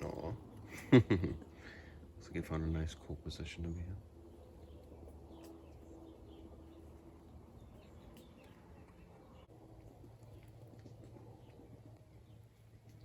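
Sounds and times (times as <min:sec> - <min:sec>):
faint outdoor ambience: 0:00.0 - 0:13.0
bird chirps: 0:04.4 - 0:09.5.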